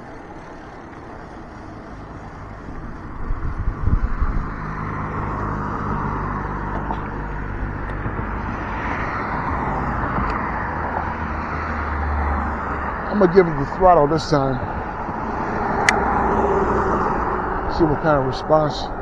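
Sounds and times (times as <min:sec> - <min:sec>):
steady low hum: 0:00.0 - 0:09.9
road noise: 0:00.0 - 0:19.0
wind buffeting microphone: 0:00.0 - 0:19.0.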